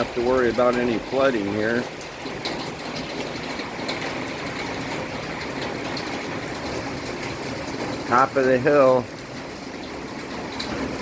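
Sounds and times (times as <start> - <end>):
steady rainfall hiss: 0.0 - 11.0.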